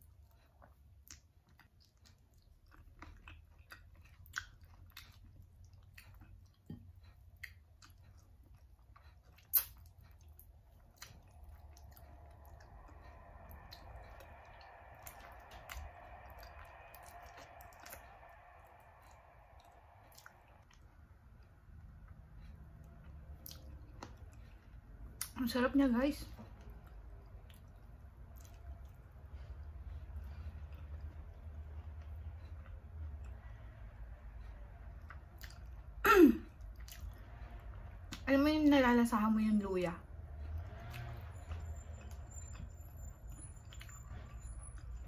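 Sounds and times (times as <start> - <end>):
person chewing: 0.0 - 25.4, 26.4 - 33.5, 34.9 - 38.2, 40.4 - 45.0
wet mouth clicks and smacks: 7.4 - 20.8.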